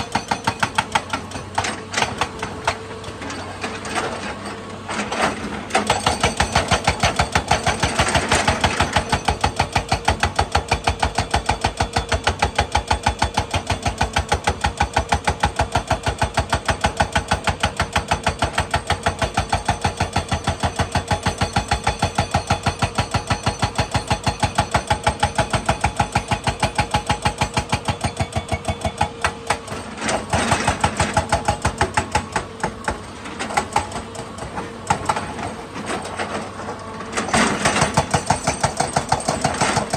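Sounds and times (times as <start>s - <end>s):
excavator knocking: 0.0s - 4.4s, 5.8s - 39.9s.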